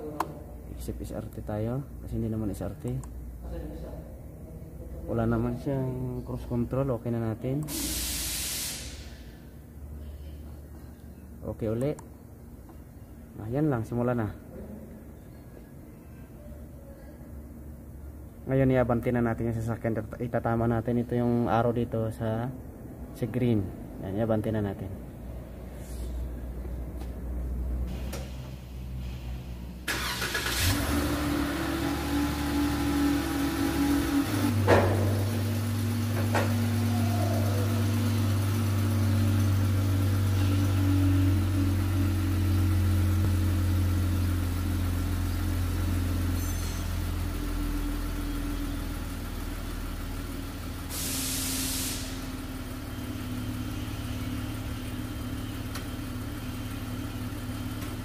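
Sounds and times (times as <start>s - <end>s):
short hiss: 7.7s - 9.3s, 50.9s - 52.2s
car engine starting and idling: 27.7s - 58.0s.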